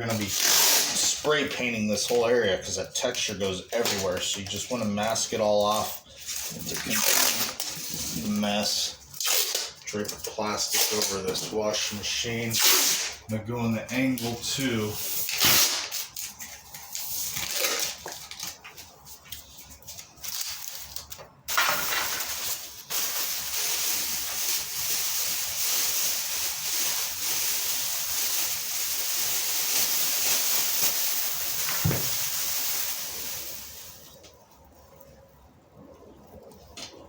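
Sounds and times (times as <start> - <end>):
plastic sheet crackling: 0.1 - 11.4, 15.2 - 34.2
steady hiss: 21.5 - 34.8.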